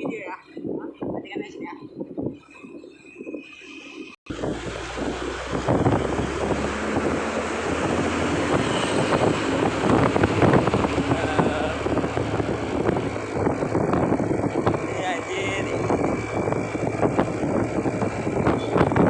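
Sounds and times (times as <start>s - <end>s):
wind buffeting microphone: 0.0s - 19.0s
truck engine running: 4.3s - 19.0s.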